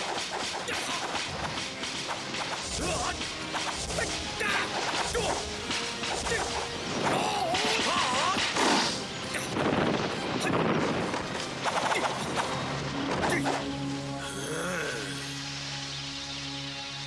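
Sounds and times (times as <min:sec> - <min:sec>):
whacks and crashing impacts: 0:00.0 - 0:12.5
whooshing swings: 0:00.0 - 0:13.7
dramatic background music: 0:00.0 - 0:17.0.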